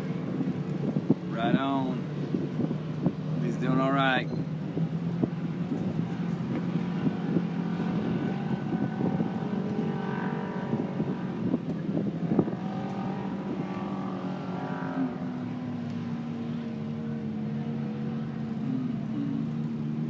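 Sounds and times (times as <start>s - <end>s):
wind on microphone: 0.0s - 15.6s
race vehicle engines revving: 0.0s - 20.0s.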